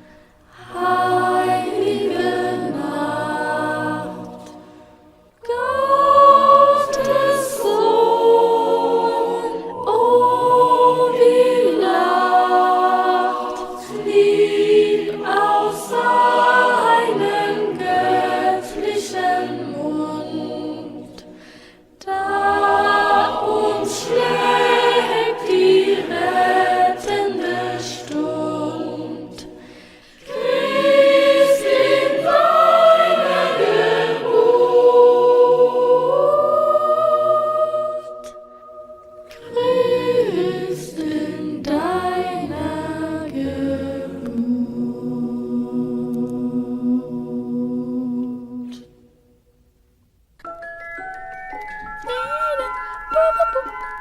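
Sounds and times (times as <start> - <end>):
voices singing a carol: 0.0 - 49.2.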